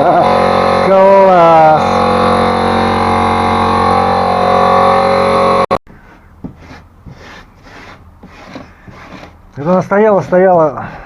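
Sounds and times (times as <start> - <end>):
loud mechanical drone: 0.0 - 5.8
faint rubbing and scraping: 6.0 - 10.8.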